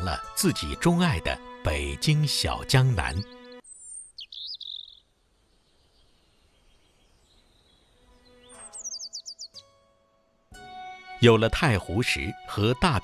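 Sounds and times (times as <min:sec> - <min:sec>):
small birds chirping: 0:02.3 - 0:09.8.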